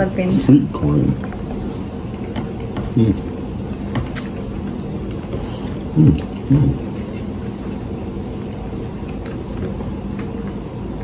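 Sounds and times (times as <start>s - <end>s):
background hum: 0.0s - 11.0s
chewing with wet mouth clicks: 1.1s - 5.3s, 6.1s - 11.0s
person humming mm-hmm: 5.9s - 6.9s.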